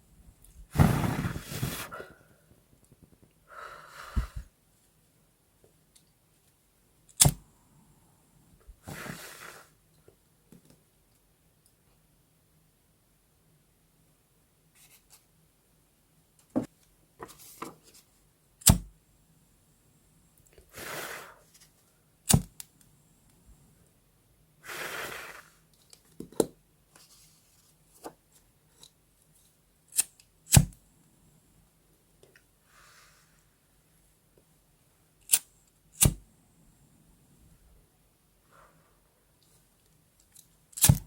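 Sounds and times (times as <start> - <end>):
paper swishes: 0.7 - 2.0.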